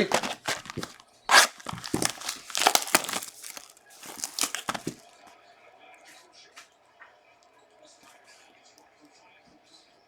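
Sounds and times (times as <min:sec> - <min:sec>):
plastic wrapping tearing and crinkling: 0:00.0 - 0:05.1.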